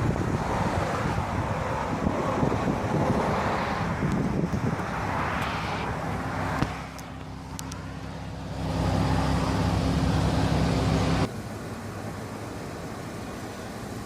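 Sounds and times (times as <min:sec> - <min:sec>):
car engine running: 0:03.9 - 0:14.0.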